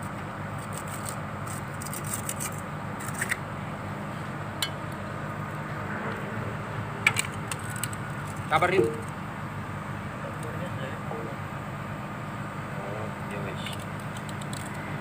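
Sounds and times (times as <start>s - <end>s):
excavator engine idling: 0.0s - 15.0s
metallic scrapes and clicks: 0.6s - 3.4s, 13.6s - 14.8s.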